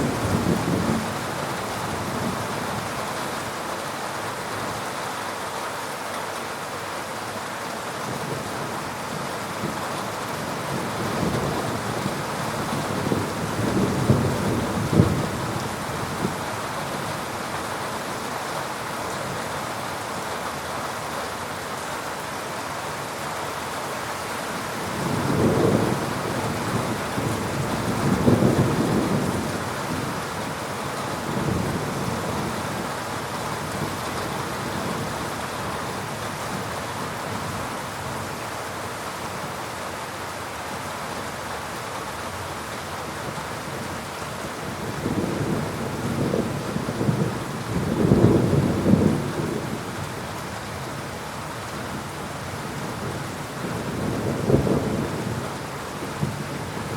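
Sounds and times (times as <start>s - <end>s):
heavy rain: 0.0s - 56.9s
thunder rumbling: 10.7s - 16.4s, 24.9s - 30.5s, 44.7s - 49.9s.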